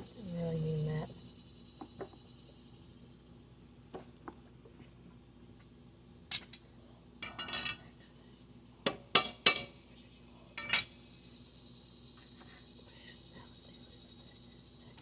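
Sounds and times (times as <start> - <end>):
metal tools clinking: 7.2 - 7.8.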